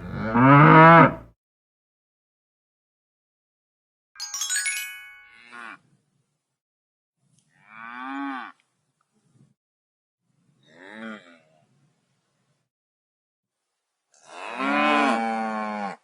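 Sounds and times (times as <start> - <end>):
cow mooing: 0.0 - 1.3, 7.6 - 8.6, 14.2 - 16.0
bright chime: 4.2 - 5.7.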